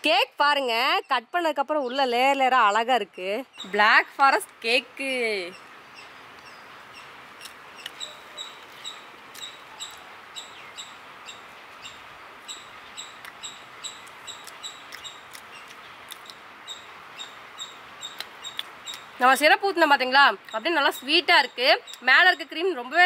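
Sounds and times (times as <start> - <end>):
faint background hiss: 0.0 - 23.0
wet lip-smacking chewing: 14.0 - 16.4, 18.1 - 19.1.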